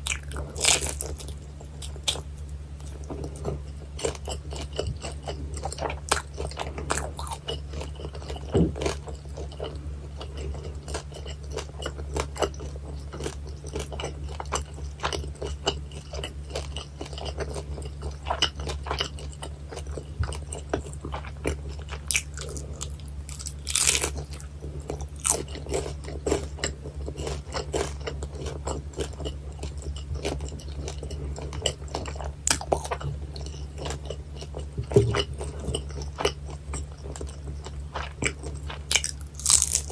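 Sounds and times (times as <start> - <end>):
low hum: 0.0 - 13.6
crunching fried food: 0.0 - 39.9
wet chewing clicks: 0.0 - 39.9.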